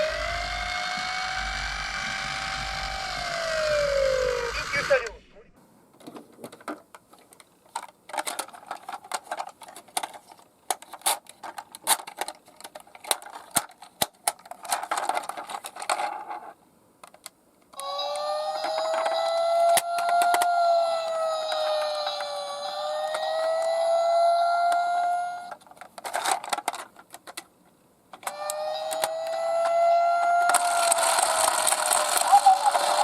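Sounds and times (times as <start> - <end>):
toy cars rattling down a slope: 0.0 - 5.0, 28.2 - 33.0
wavering siren: 0.0 - 5.2, 17.8 - 25.6, 28.3 - 33.0.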